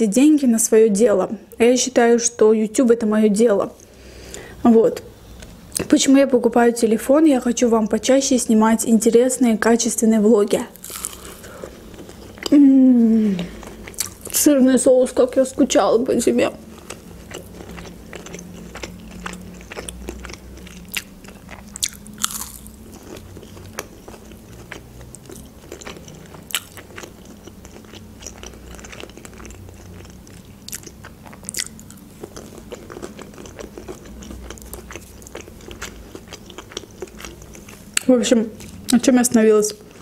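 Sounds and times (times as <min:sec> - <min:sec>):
food bites and crunches: 0:10.8 - 0:12.5, 0:13.8 - 0:14.4, 0:16.8 - 0:38.8.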